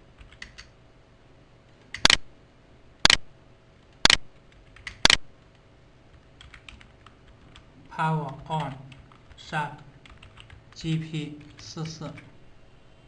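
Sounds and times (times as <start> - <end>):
sharp double-snap clicks: 4.0 - 4.2.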